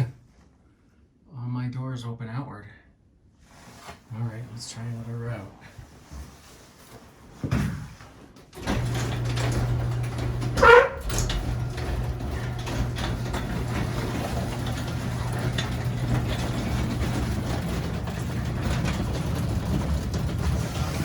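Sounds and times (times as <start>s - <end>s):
garage door opener humming: 8.4s - 21.0s.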